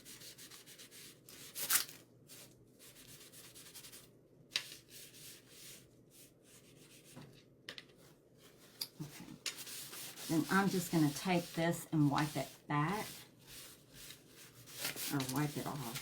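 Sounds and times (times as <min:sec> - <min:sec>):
sponge scrubbing wood: 0:09.6 - 0:16.0.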